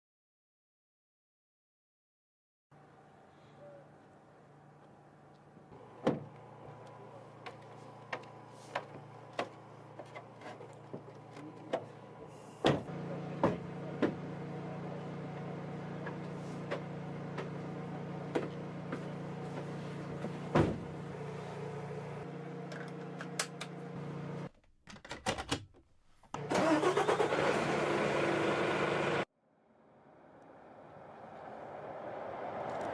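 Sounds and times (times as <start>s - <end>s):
vehicle engine running: 4.0s - 24.5s
rushing noise: 29.8s - 32.9s.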